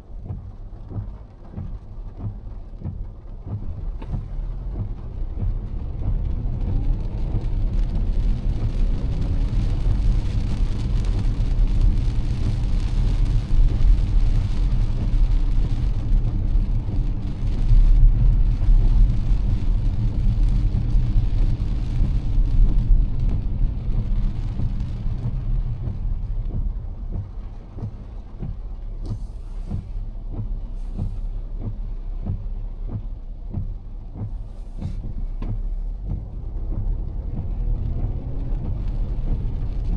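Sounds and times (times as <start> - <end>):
low road rumble: 0.0 - 39.9
rain and wet tyres hiss: 0.0 - 39.9.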